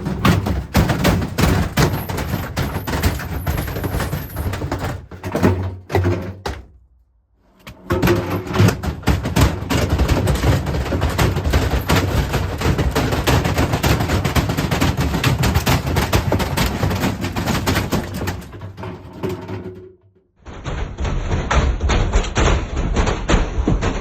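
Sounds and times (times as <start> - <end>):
washing machine clattering and banging: 0.0 - 6.8, 7.6 - 20.0.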